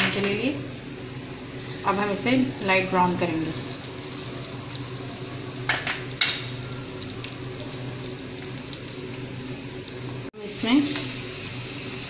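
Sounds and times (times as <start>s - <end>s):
onion and garlic sizzling in oil: 10.4s - 12.0s.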